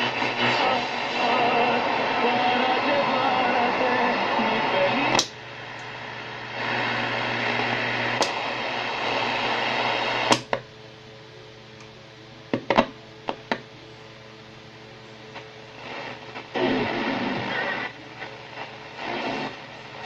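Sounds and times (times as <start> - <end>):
radio station audio: 0.0 - 10.4, 15.3 - 20.0
radio static hiss: 0.0 - 10.6, 12.5 - 20.0
steady low hum: 0.0 - 20.0
switch clicks: 10.3 - 10.6.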